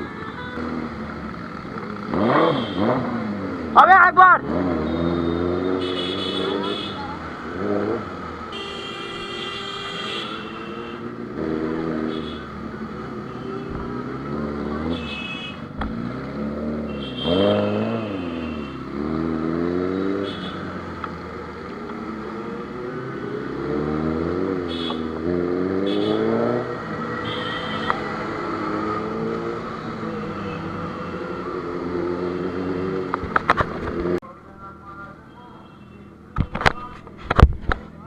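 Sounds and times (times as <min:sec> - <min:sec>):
motorbike engines revving: 0:00.0 - 0:38.0.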